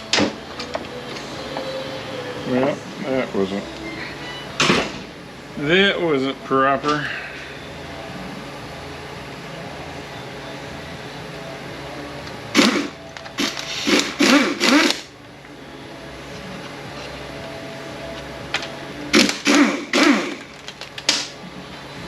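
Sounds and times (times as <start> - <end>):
impact gun bursts: 12.6 - 15.1, 19.1 - 21.4.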